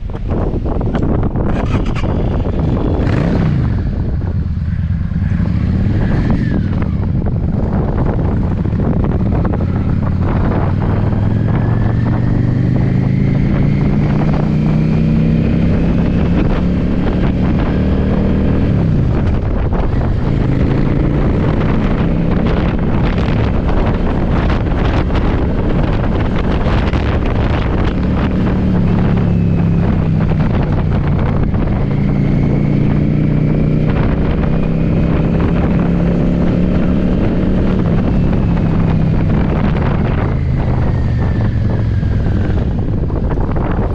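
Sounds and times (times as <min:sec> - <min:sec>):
wind buffeting microphone: 0:00.0 - 0:43.9
motorcycle engine pulling: 0:00.9 - 0:04.0.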